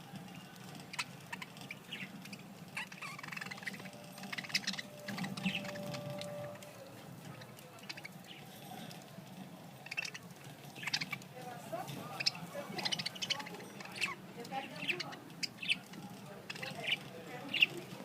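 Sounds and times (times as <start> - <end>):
budgerigars chirping: 0.9 - 6.5, 7.3 - 8.5, 9.8 - 11.2, 12.0 - 17.8.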